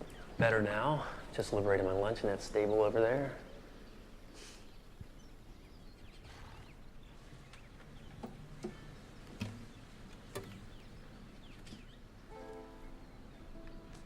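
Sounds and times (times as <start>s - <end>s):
faint bird chirps: 2.6s - 14.0s.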